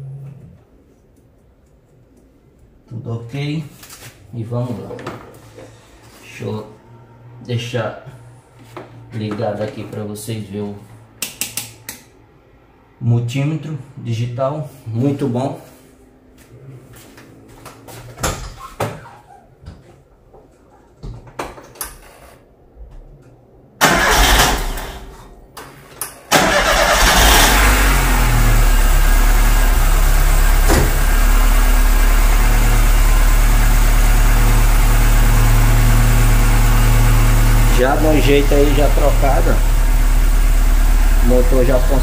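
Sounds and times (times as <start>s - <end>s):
car engine starting and idling: 23.8s - 42.0s.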